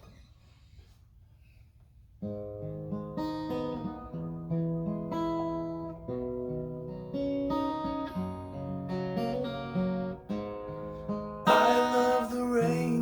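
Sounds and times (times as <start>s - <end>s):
acoustic guitar chords: 2.3s - 13.0s
person singing: 11.5s - 13.0s.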